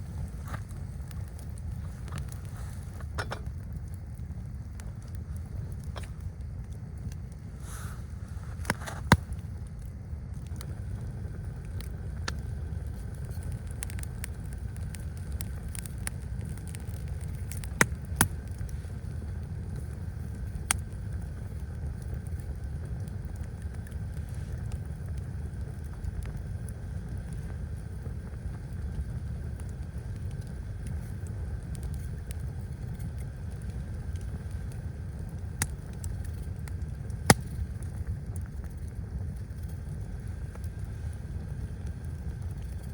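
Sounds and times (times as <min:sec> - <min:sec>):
sharp snaps: 0:37.2 - 0:37.6.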